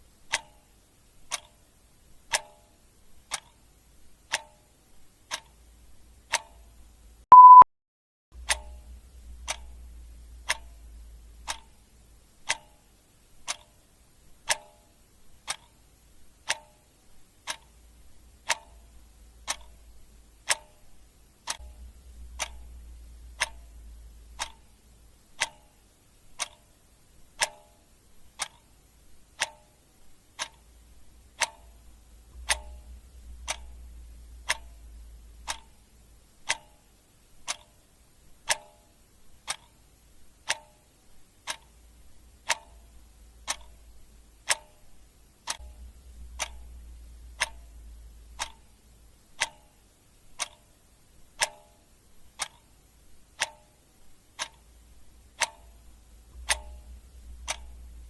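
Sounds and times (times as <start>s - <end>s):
clock ticking: 0.2s - 7.6s, 8.4s - 58.0s
short electronic beep: 7.3s - 7.7s.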